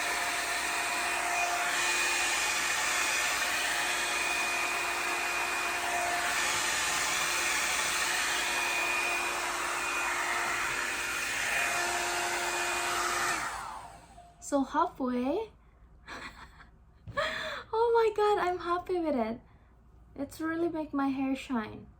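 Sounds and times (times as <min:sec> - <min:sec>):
hot-air brush dryer blowing: 0:00.0 - 0:14.2.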